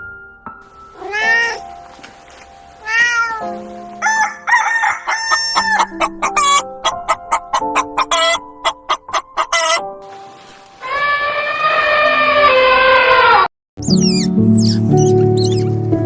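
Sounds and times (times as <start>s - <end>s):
background music: 0.0s - 13.2s, 13.8s - 16.0s
cat meowing: 0.9s - 1.7s, 2.8s - 3.6s
rooster crowing: 4.0s - 9.8s
chicken clucking: 4.1s - 9.8s.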